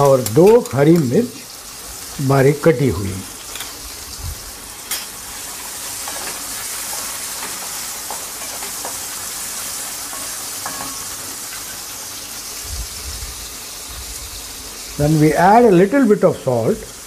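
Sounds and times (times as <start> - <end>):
onions sizzling in oil: 0.0 - 17.0
spatula knocking pan: 10.1 - 11.2.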